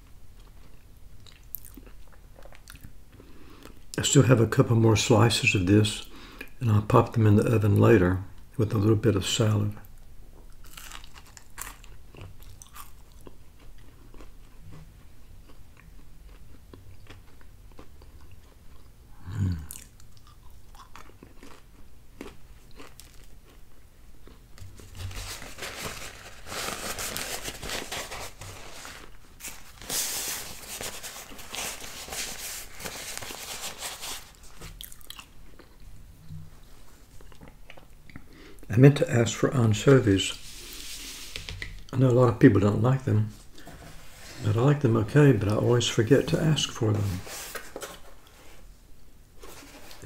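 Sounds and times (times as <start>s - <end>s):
chewing crunchy food: 0.3s - 3.8s, 10.4s - 24.8s, 34.2s - 35.9s, 37.1s - 38.7s.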